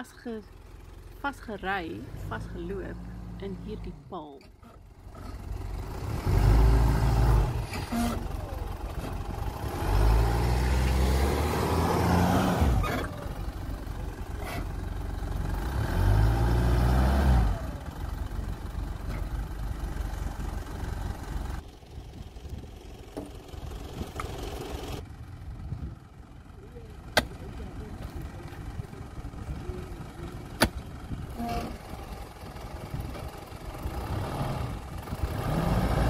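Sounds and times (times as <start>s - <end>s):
car engine revving hard: 9.6s - 13.1s, 15.6s - 17.8s, 33.9s - 36.0s.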